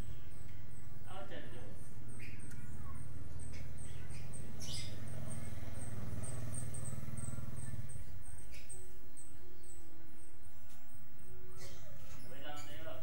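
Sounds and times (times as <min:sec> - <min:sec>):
bird high chirps: 0:02.0 - 0:13.0.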